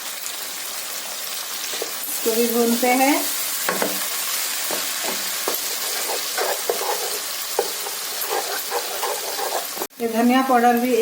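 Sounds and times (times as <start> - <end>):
vegetables sizzling in oil: 0.0 - 11.0
spatula scraping pan: 4.6 - 9.9.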